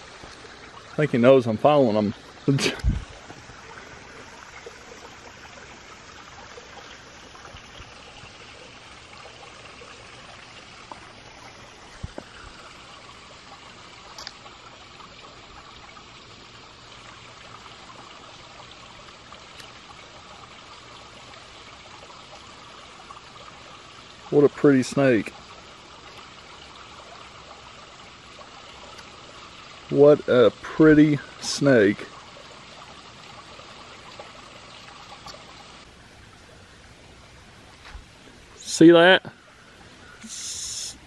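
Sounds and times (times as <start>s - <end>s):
stream trickling: 0.0s - 41.0s.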